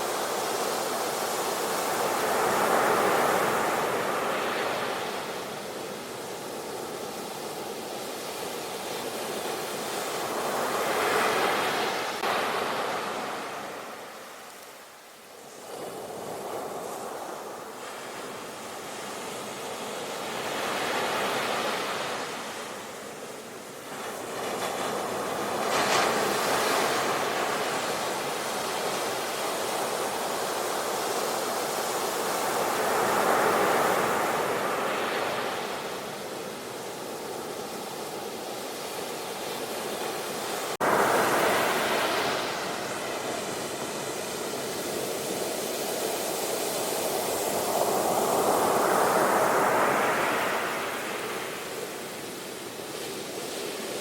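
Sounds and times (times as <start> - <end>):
ocean waves breaking: 39.8 - 54.0.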